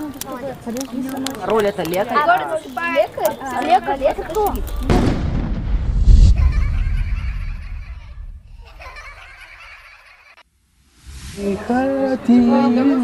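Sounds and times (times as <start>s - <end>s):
people laughing and chattering: 0.0s - 5.0s, 6.2s - 10.4s, 11.4s - 13.0s
heavy low rumble: 4.4s - 8.8s.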